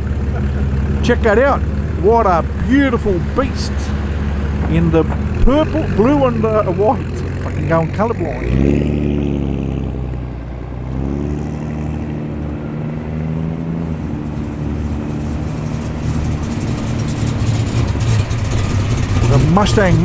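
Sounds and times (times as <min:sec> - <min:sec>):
car engine at low revs: 0:00.0 - 0:20.0.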